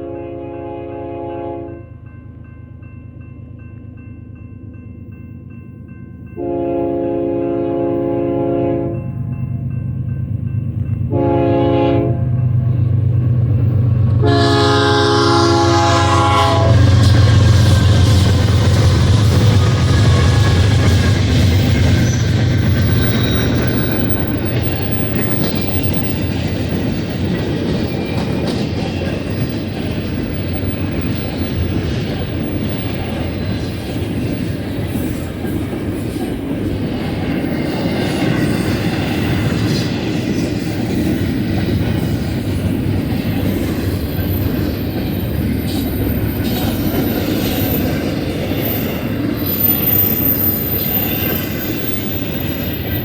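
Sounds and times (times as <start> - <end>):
train wheels rumbling on rail: 5.0 - 53.0
wheel squeal: 21.5 - 26.2.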